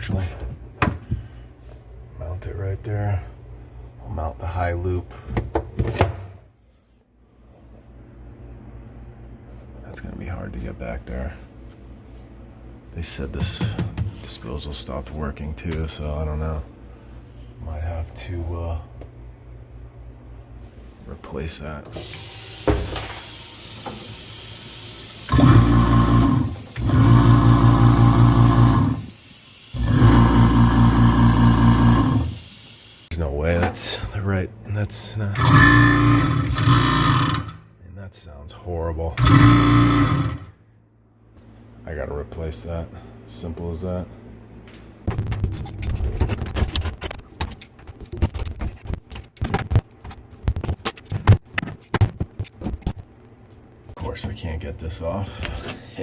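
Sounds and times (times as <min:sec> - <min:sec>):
garbage disposal motor buzzing: 0:22.0 - 0:33.1, 0:35.4 - 0:37.6, 0:39.2 - 0:40.5
water running into sink: 0:22.0 - 0:33.1.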